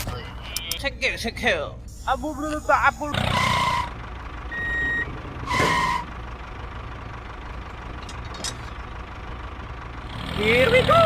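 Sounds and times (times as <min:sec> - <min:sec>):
engine running: 0:01.4 - 0:11.0
vehicle reversing beeper: 0:01.9 - 0:06.2.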